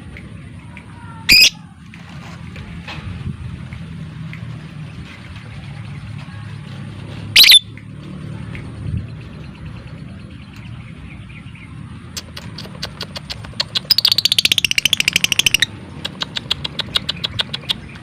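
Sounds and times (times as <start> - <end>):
lovebird clicking trill: 12.1 - 18.0.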